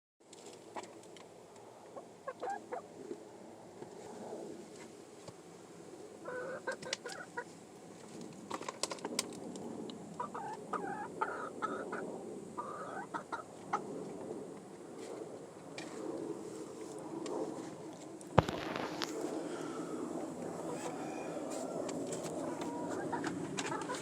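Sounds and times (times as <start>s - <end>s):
young chickens clucking: 1.9s - 2.9s, 6.2s - 7.5s, 10.2s - 12.0s, 12.6s - 13.8s, 20.4s - 24.0s.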